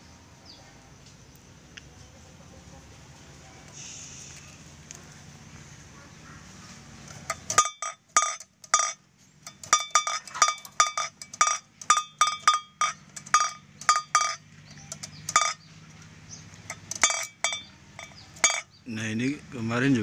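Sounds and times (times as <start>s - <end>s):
bamboo noisemaker clacking: 7.0s - 18.7s.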